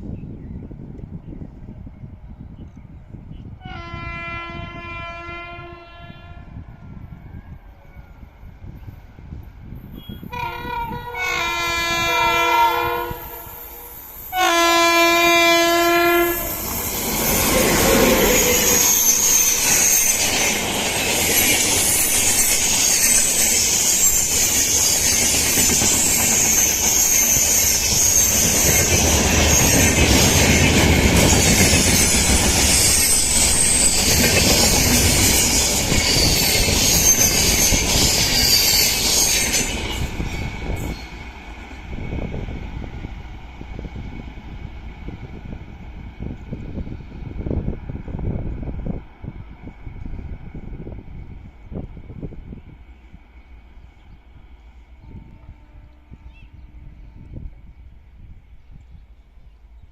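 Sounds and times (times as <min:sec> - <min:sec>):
locomotive horn blasts: 0:03.6 - 0:06.7, 0:10.0 - 0:16.6, 0:55.1 - 0:57.4
high wheel squeals: 0:16.1 - 0:41.3
train wheels clattering on rails: 0:16.4 - 0:43.1.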